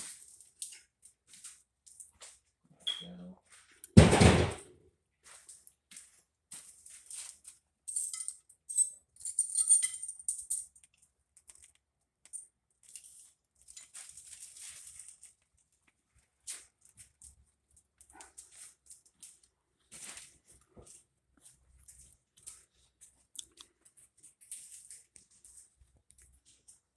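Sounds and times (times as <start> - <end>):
hard objects rattling and scraping: 4.0 - 4.7.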